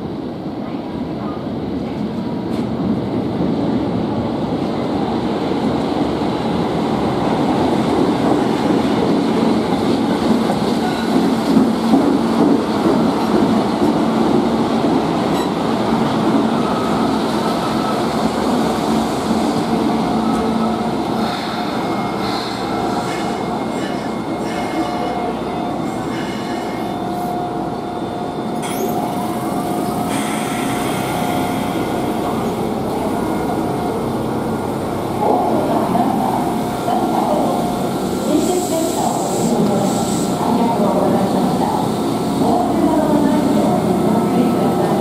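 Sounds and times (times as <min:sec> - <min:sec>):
train wheels rumbling on rail: 0:00.0 - 0:45.0
high brake squeal: 0:30.0 - 0:32.1.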